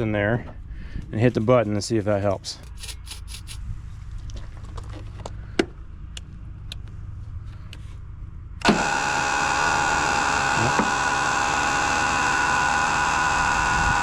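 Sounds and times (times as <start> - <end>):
generator engine running: 8.6 - 14.0.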